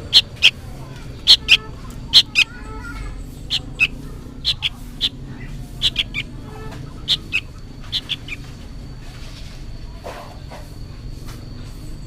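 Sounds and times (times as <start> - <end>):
young bird sharp high calls: 0.0 - 8.5.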